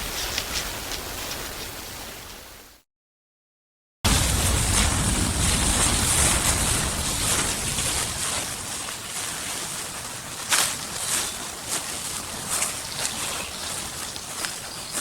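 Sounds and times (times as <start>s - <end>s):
dry leaves crunching: 4.1s - 15.0s
wind on microphone: 4.1s - 15.0s.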